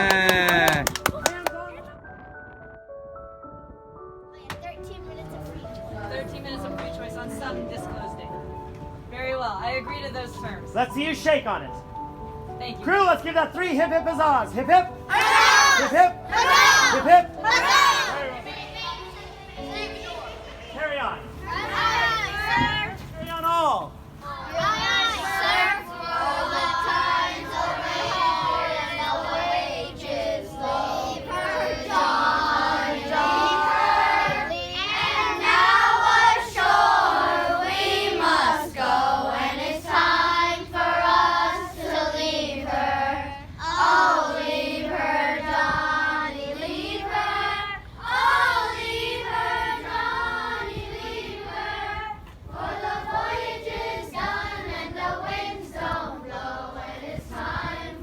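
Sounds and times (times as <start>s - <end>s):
children singing in unison: 24.4s - 58.0s.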